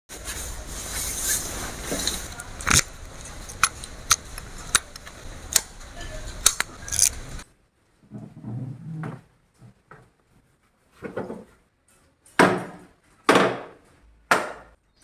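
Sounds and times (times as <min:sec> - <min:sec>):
steady hiss: 0:00.1 - 0:07.4
sharp mechanical clicks: 0:02.3 - 0:07.4.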